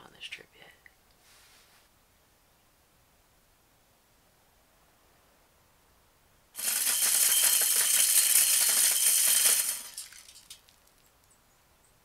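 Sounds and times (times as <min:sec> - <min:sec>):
corn rattling spray: 0:06.6 - 0:10.6.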